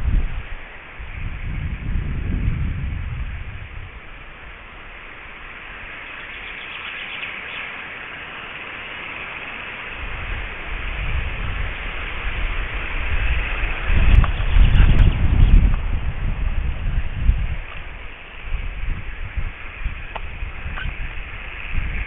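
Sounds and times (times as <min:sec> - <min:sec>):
steady outdoor hiss: 0:00.0 - 0:22.0
wind rumbling on microphone: 0:00.0 - 0:22.0
faint high bird calls: 0:05.0 - 0:10.0.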